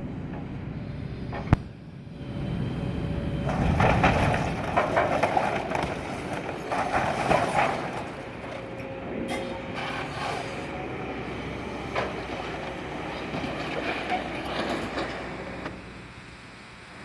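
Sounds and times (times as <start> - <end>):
excavator engine under load: 0.0 - 17.0
debris crunching and scraping: 3.5 - 10.7.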